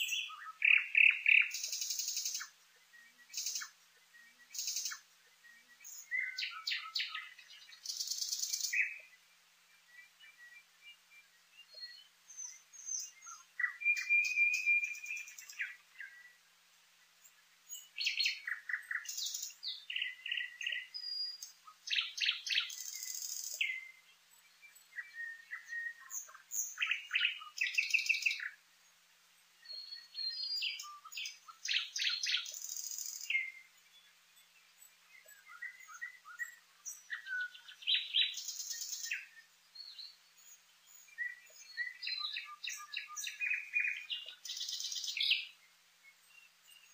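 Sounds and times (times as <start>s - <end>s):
songbird singing trills: 0.0s - 46.9s.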